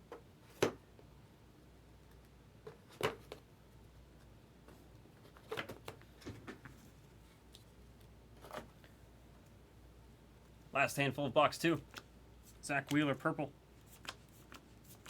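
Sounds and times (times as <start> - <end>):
cards rustling and tapping: 11.8 - 15.0.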